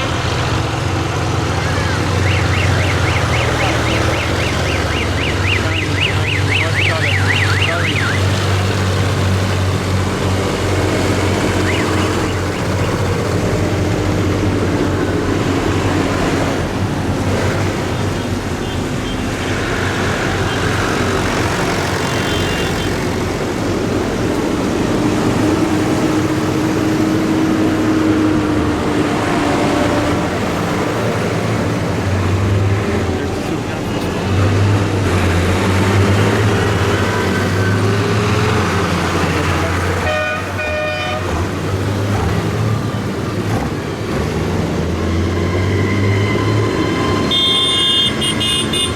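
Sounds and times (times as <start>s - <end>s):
tractor engines running: 0.0s - 48.9s
warbling siren-like tone: 1.6s - 8.4s, 11.5s - 13.0s, 45.1s - 48.2s.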